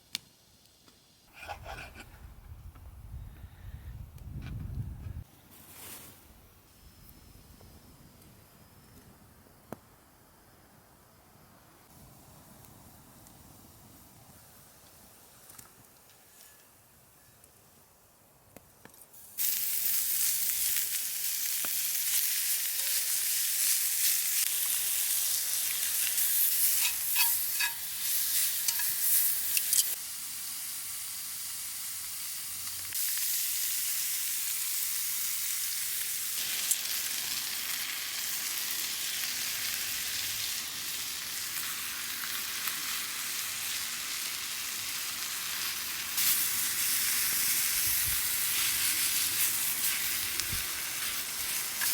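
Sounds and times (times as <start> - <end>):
small crackles: 14.2 - 17.8, 18.5 - 30.0, 40.8 - 51.9
food sizzling in a pan: 19.2 - 51.9.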